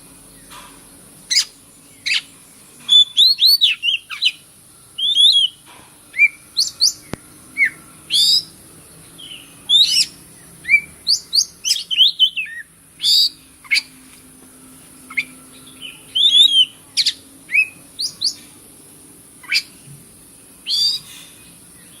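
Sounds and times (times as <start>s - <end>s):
steady high hiss: 0.0s - 22.0s
bird singing whistles and chirps: 1.3s - 2.3s, 2.9s - 8.6s, 9.2s - 13.9s, 15.1s - 18.4s, 19.4s - 19.8s, 20.6s - 22.0s.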